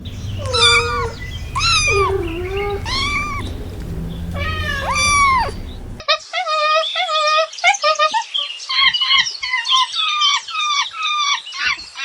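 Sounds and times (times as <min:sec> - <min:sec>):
cat meowing: 0:00.0 - 0:06.0.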